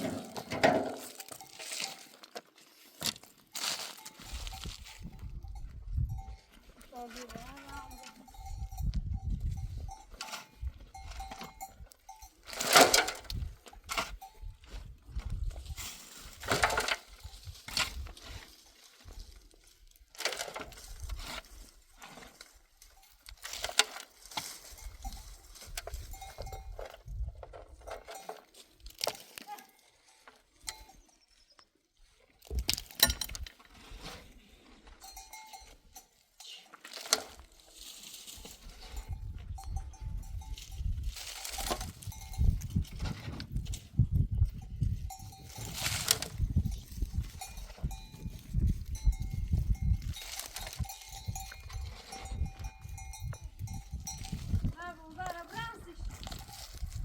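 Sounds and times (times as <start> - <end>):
livestock bells clanking: 0.0 - 2.2, 3.6 - 14.8, 24.6 - 27.2, 29.6 - 31.3, 34.9 - 36.6, 38.6 - 43.1, 44.4 - 56.9
sharp knocks and clinks: 32.6 - 33.6.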